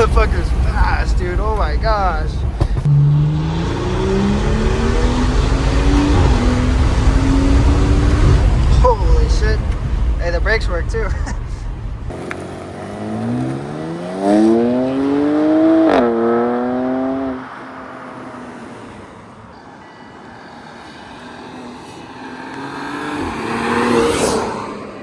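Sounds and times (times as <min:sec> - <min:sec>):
sharp crack at gear change: 0:00.0 - 0:12.8
second car engine revving: 0:00.0 - 0:18.6, 0:21.2 - 0:25.0
car engine accelerating: 0:00.0 - 0:25.0.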